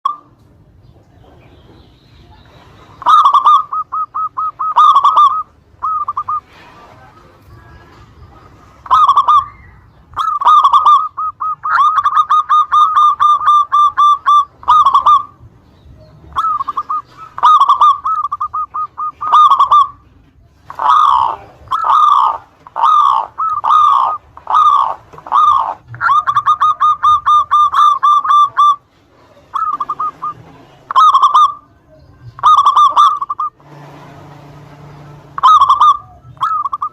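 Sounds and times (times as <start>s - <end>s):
dove cooing: 2.3s - 15.5s, 16.2s - 33.8s, 34.9s - 36.9s.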